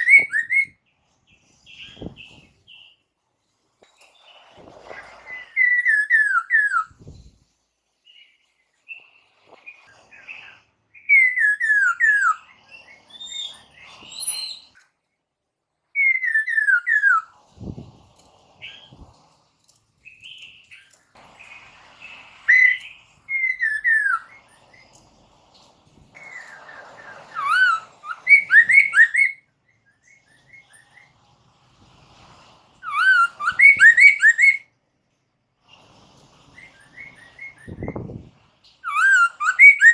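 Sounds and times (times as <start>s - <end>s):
bird singing whistled phrases: 0.0s - 0.8s, 5.2s - 7.1s, 11.0s - 14.8s, 16.0s - 17.3s, 22.5s - 24.4s, 26.2s - 30.8s, 32.8s - 34.7s, 38.8s - 39.9s.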